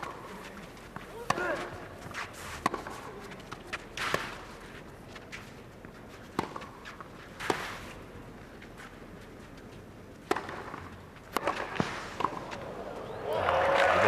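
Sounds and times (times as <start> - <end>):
shoes sliding on clay: 0.1 - 9.8
racket striking tennis ball: 1.2 - 3.1, 3.9 - 4.5, 6.3 - 7.9, 10.2 - 12.6.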